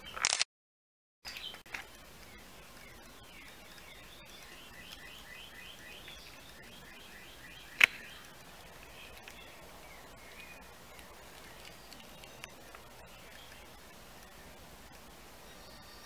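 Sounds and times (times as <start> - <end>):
sharp click: 0.1 - 0.5, 7.8 - 8.1
bird chirping: 1.2 - 16.0.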